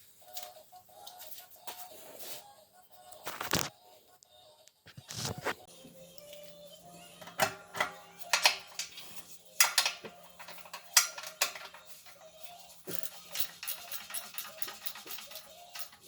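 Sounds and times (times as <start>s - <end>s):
metal tools clinking: 7.3s - 16.0s.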